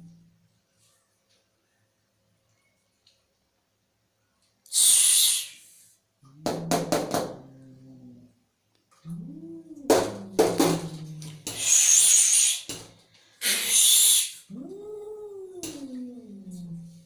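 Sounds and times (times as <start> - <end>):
cat hissing: 4.7 - 6.0, 9.8 - 12.8, 13.4 - 14.8
cat spitting: 13.4 - 14.6
cat yowling: 13.5 - 16.8.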